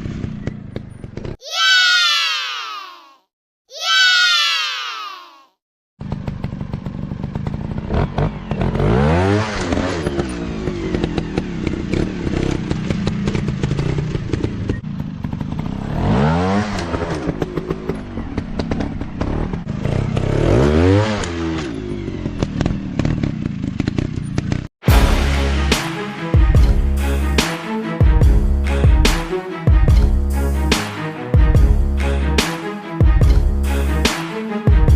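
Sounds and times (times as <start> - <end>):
bikes rattling and knocking: 0.0 - 1.4, 6.0 - 8.8, 9.6 - 15.9, 16.8 - 20.5, 21.4 - 24.7
music: 24.8 - 34.9.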